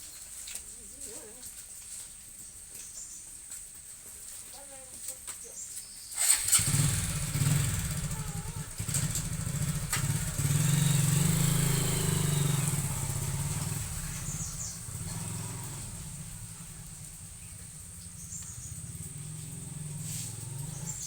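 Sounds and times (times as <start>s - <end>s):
vehicle engine running: 6.2s - 21.0s.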